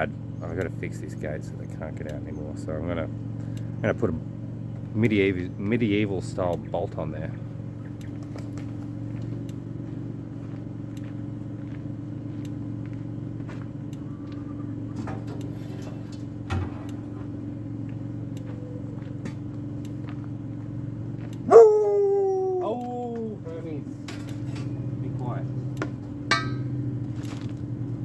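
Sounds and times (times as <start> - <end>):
low engine-like hum: 0.0 - 28.0
dog howling: 21.4 - 23.2.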